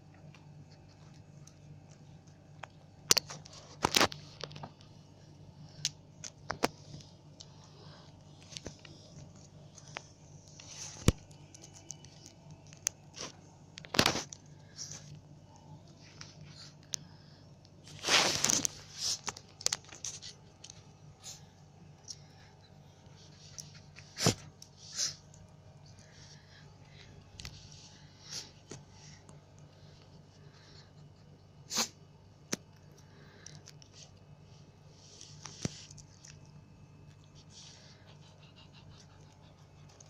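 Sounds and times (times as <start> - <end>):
steady low hum: 0.0 - 40.0
rustling: 17.8 - 21.4.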